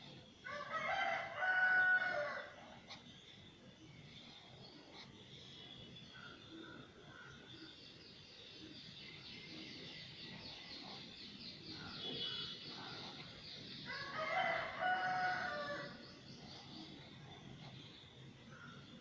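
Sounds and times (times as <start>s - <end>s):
small birds chirping: 0.0s - 19.0s
rooster crowing: 0.5s - 2.5s, 13.9s - 16.0s.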